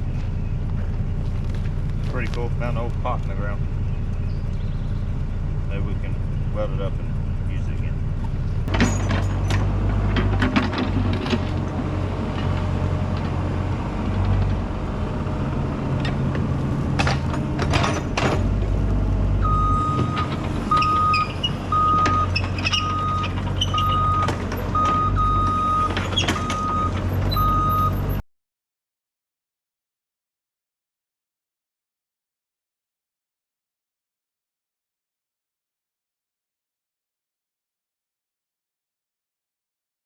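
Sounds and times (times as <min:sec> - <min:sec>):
excavator diesel engine: 0:00.0 - 0:28.2
sharp metal clanks: 0:08.7 - 0:09.7
reversing alarm beeping: 0:19.4 - 0:28.0.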